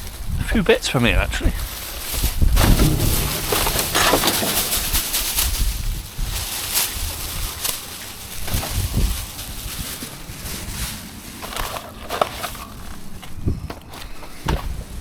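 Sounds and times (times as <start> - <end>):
items rummaged in a bin: 0.0 - 15.0.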